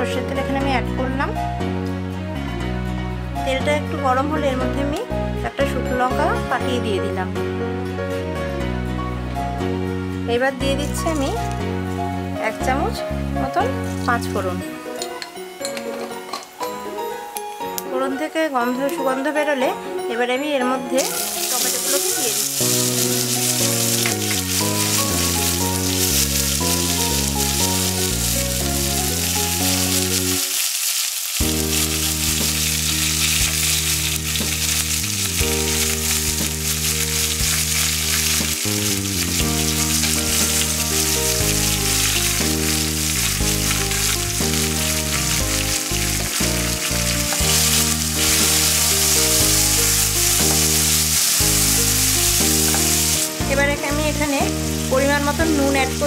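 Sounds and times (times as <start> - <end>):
soft background music: 0.0 - 30.6, 31.4 - 56.0
tomatoes sizzling in hot oil: 10.0 - 14.7, 20.8 - 56.0.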